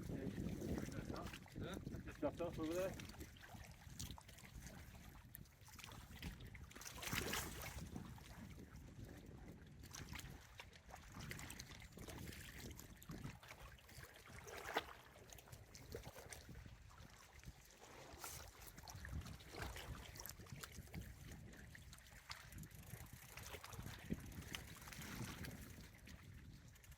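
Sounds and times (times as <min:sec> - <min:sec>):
faint wind rumble: 0:00.0 - 0:03.0.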